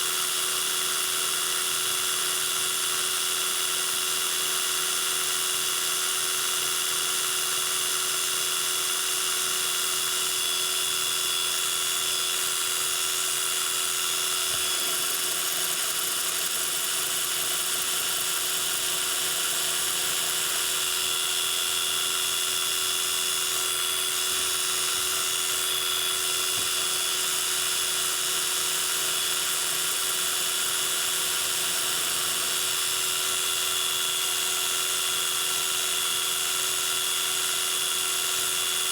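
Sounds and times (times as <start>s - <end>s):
metal lathe whining: 10.3s - 35.4s.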